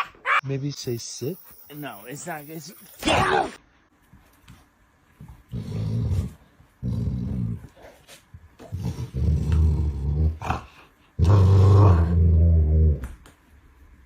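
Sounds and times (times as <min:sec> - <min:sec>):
dog growling: 0:05.5 - 0:07.8, 0:08.6 - 0:13.0.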